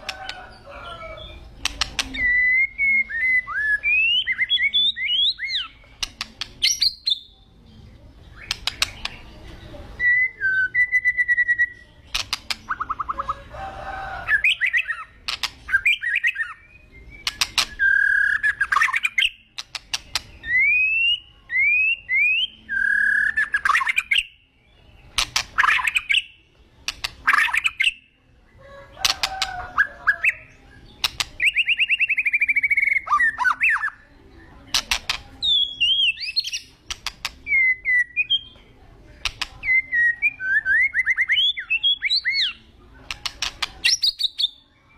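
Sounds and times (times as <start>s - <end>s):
bird whistled song phrases: 2.0s - 5.8s, 10.0s - 11.8s, 15.7s - 19.4s, 20.4s - 24.4s, 29.8s - 34.0s, 35.4s - 36.7s, 37.5s - 38.6s, 39.6s - 42.6s.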